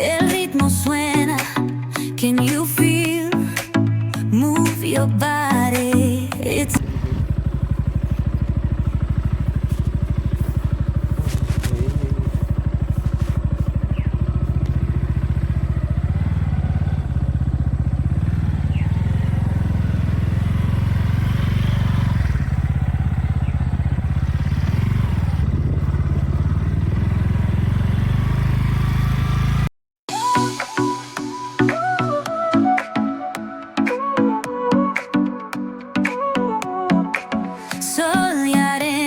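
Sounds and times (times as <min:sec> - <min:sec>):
vehicle engine throbbing: 0:02.9 - 0:29.7.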